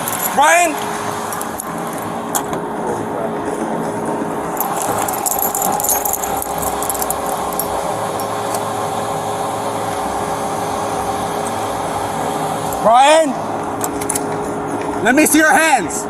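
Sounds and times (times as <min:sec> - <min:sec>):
light rattling and jingling: 0:00.0 - 0:02.4, 0:04.4 - 0:08.8.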